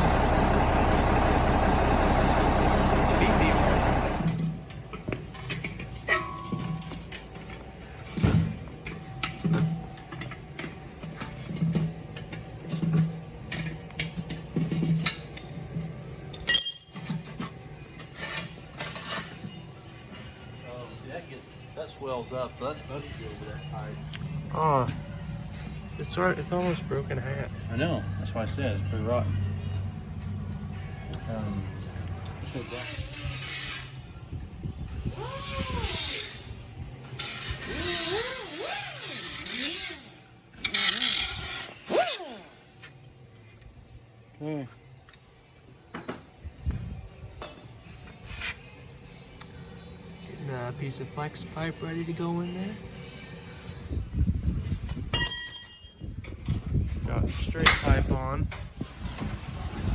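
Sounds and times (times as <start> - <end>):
metal scraping and squealing: 32.3 - 34.1, 35.0 - 42.6.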